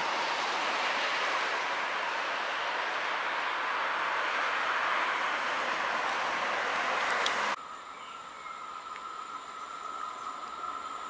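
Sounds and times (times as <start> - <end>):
railway rushing: 0.0 - 7.6.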